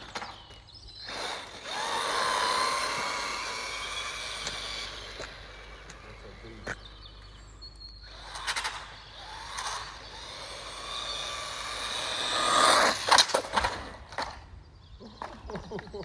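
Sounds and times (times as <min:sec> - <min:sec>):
radio-controlled car driving past: 0:01.2 - 0:07.2, 0:08.1 - 0:14.4.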